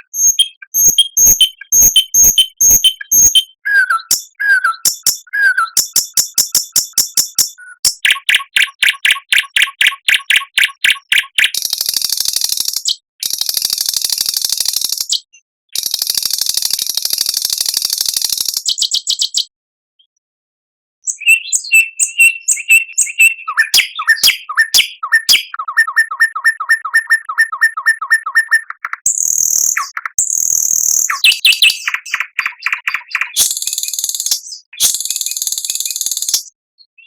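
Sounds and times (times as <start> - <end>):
songbird high buzzy trill: 0.0 - 8.8, 29.1 - 32.2
songbird clear whistles: 0.0 - 11.7, 21.0 - 37.0.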